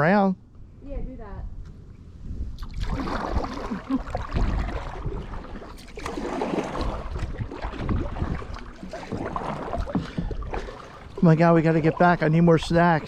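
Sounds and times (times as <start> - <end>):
kayak paddles splashing water: 2.6 - 13.0.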